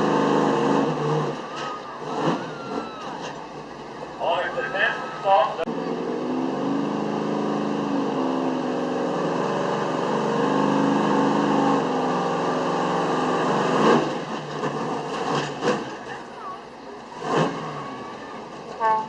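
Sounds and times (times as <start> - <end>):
truck engine revving hard: 0.0 - 19.0.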